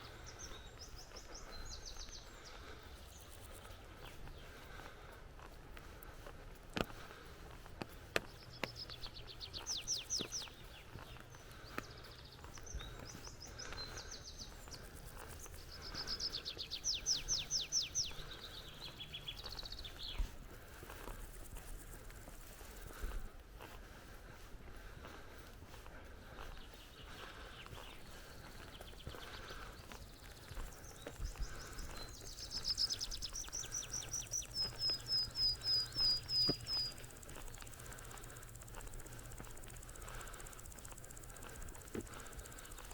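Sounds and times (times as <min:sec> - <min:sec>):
bird chirps: 0:00.0 - 0:04.6, 0:08.2 - 0:20.4, 0:26.5 - 0:42.9
songbird singing: 0:00.0 - 0:42.9.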